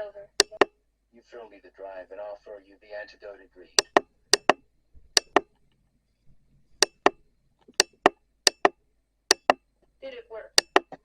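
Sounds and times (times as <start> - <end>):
sharp hard clicks in pairs: 0.4 - 0.7, 3.8 - 5.5, 6.8 - 9.6, 10.6 - 11.0.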